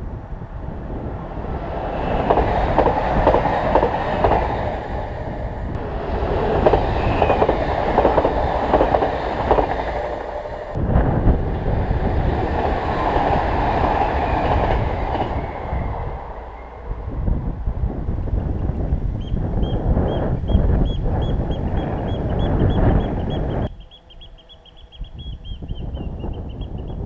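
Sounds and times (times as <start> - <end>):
train wheels clattering over rails: 1.8 - 10.7, 11.4 - 15.8.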